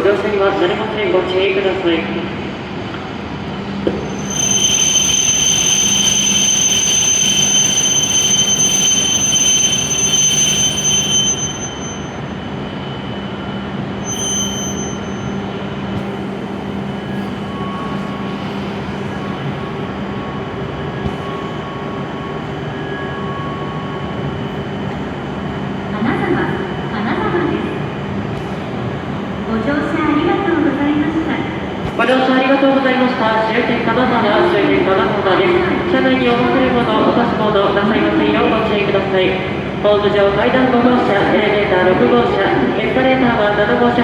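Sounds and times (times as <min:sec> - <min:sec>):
train running hum: 0:00.0 - 0:44.0
wheel and brake squeal: 0:04.1 - 0:12.1, 0:14.0 - 0:15.4.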